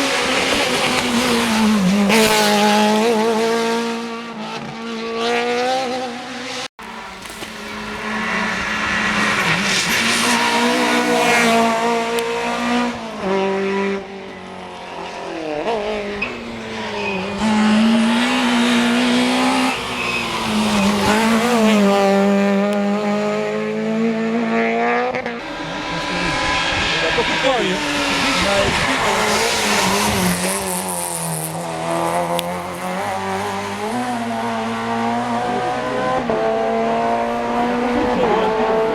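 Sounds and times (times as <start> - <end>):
rally car engines revving: 0.0 - 38.9
tyre squeal: 14.3 - 21.7.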